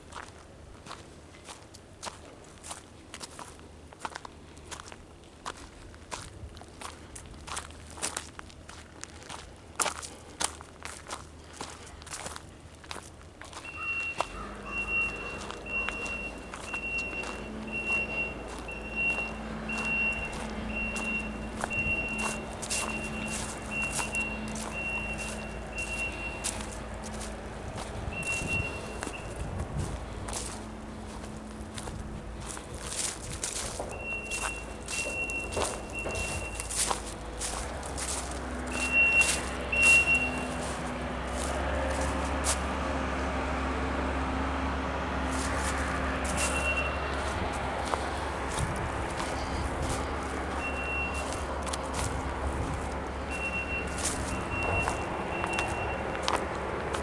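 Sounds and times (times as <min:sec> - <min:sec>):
engine humming: 0:00.0 - 0:57.0
footsteps crunching: 0:00.0 - 0:57.0
backup alarm beeping: 0:13.6 - 0:43.3, 0:45.2 - 0:57.0.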